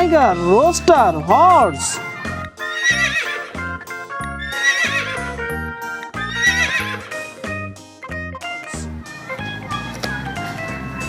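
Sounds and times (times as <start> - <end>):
background music with steady beat: 0.0 - 11.0
horse whinnying: 1.7 - 3.8, 4.4 - 5.4, 6.2 - 7.3.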